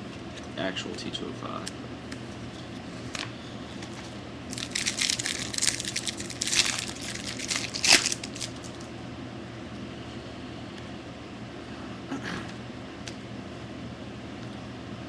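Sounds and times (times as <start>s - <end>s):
wrapper crinkling: 3.8s - 8.9s.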